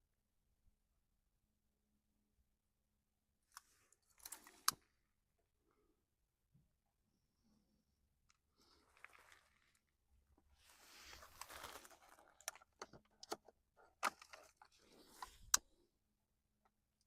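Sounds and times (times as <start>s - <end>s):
kindling rustling: 10.6s - 12.9s.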